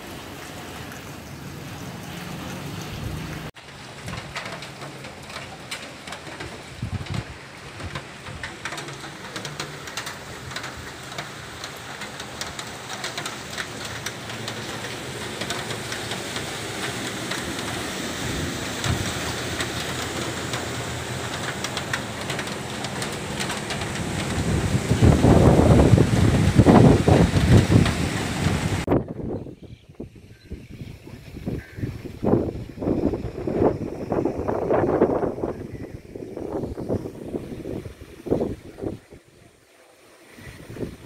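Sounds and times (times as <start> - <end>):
raindrops tapping on surfaces: 0.0 - 29.0
steady rain falling: 0.0 - 29.8, 30.4 - 41.0.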